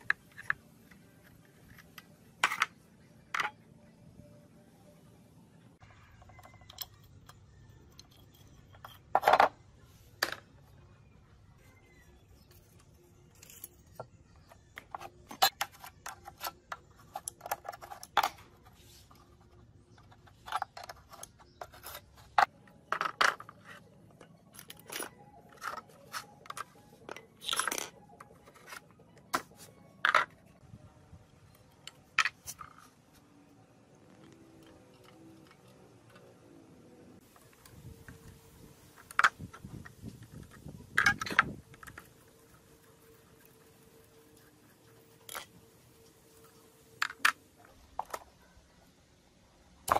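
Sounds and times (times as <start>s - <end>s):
metal parts clinking and scraping: 6.1s - 9.6s, 12.4s - 29.0s, 37.2s - 48.4s.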